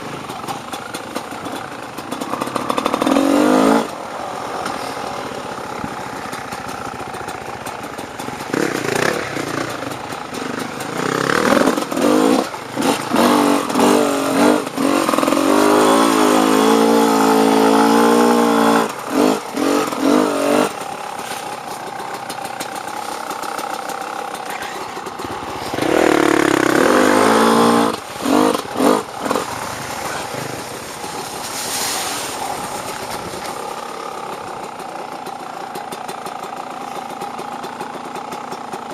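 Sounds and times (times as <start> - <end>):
dirt bike engine revving: 0.1 - 7.1, 7.9 - 31.2.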